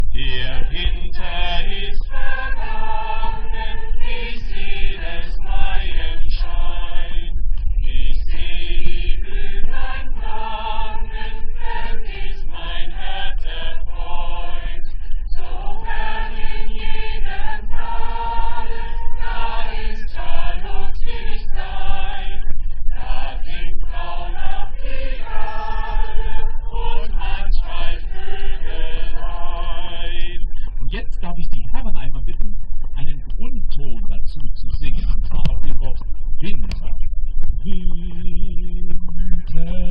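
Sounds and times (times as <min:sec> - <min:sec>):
choir singing: 0:00.2 - 0:07.3, 0:07.9 - 0:30.5.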